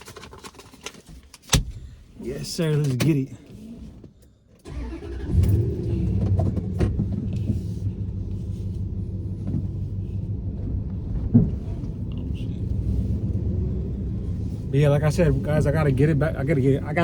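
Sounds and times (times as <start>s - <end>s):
pickup engine rumbling: 4.6s - 17.0s.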